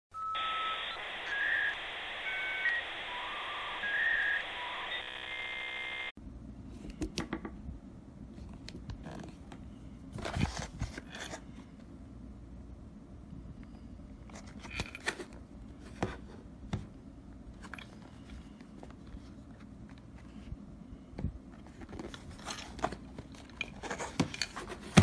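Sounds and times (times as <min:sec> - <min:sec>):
electronic beeping tones: 0:00.2 - 0:06.1.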